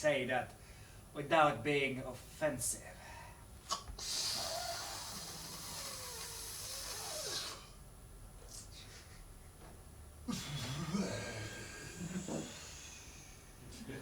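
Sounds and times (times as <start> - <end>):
breath hissing on a microphone: 3.7 - 7.8.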